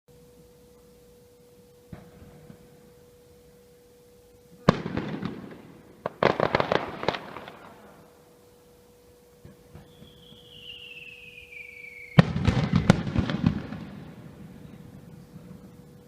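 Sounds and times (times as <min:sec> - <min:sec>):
faint steady tone: 0:00.1 - 0:16.0
crackling firework pops: 0:04.7 - 0:07.8, 0:09.4 - 0:10.7, 0:12.1 - 0:14.0.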